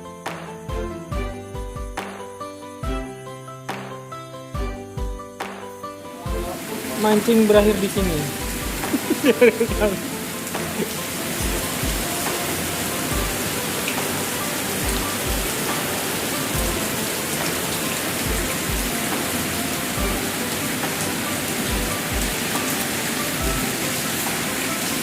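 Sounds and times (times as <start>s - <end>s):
background music with deep beat: 0.0s - 25.0s
steady rain falling: 5.4s - 25.0s.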